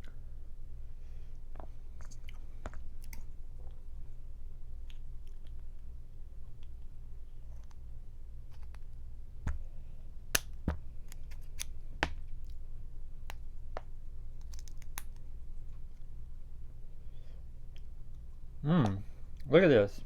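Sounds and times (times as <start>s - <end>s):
steady low hum: 0.0s - 20.0s
scissors cracking shells: 10.4s - 12.6s, 14.4s - 15.2s.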